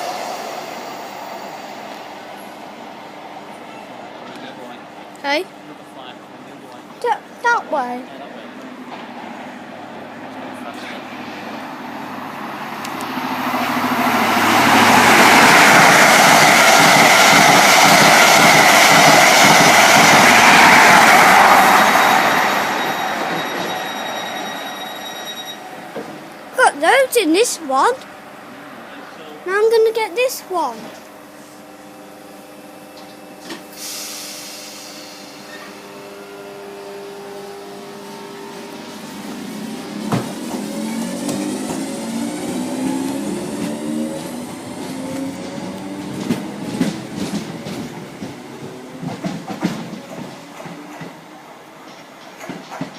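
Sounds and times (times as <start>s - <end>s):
train passing at speed: 0.0s - 52.9s
hiss: 33.7s - 35.6s.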